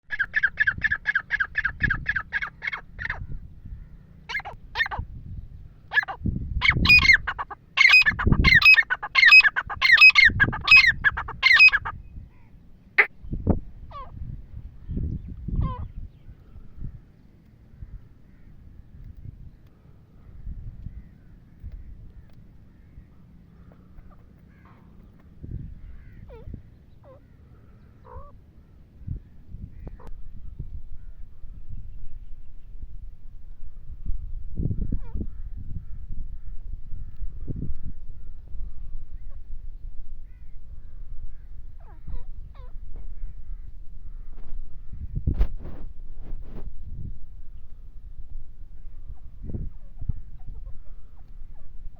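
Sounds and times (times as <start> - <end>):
francolins calling: 0.0 - 30.2.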